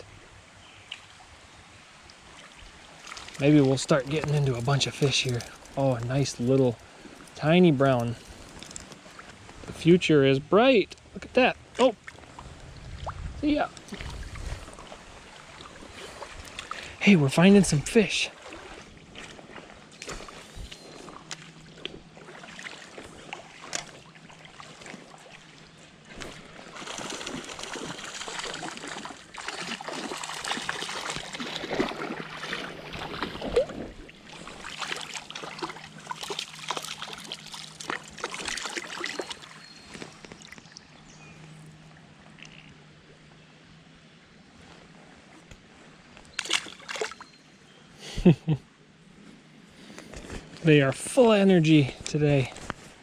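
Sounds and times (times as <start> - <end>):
creek water trickling: 0.0 - 53.0
water splashing: 2.1 - 9.9, 11.0 - 40.8, 46.3 - 47.3.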